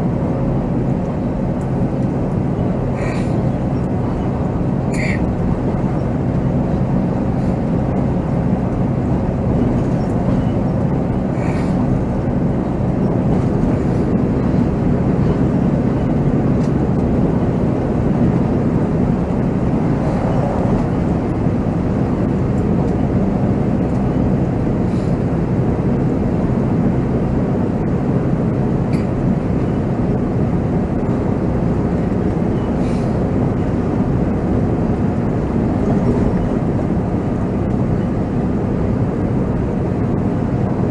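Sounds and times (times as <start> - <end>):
diesel coach engine running: 0.0 - 40.9
road noise: 0.0 - 40.9.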